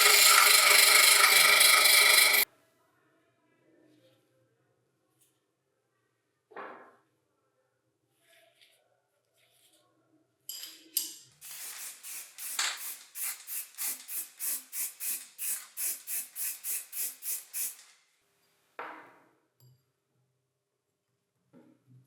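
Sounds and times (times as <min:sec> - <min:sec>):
rhythmic scraping strokes: 0:00.0 - 0:02.4.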